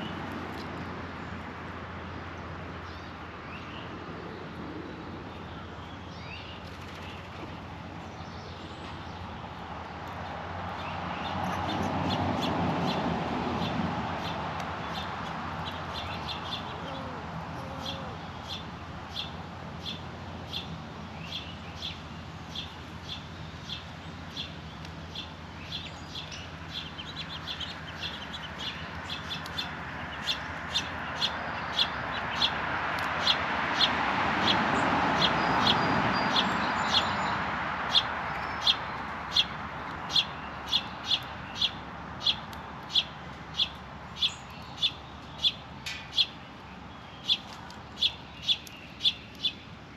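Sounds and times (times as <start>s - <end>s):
small bird chip calls: 13.6s - 34.6s, 35.2s - 49.7s.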